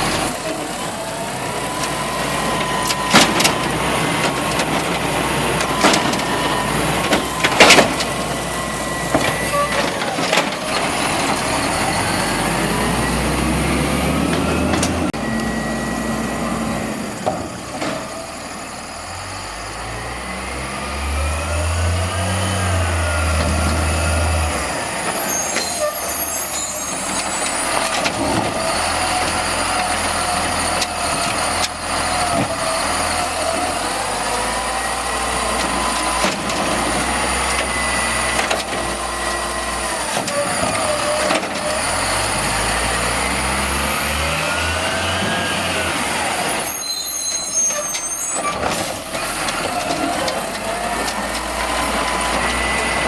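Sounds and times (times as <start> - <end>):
garbage truck engine revving: 0.0 - 53.0
hydraulic whine: 0.0 - 53.0.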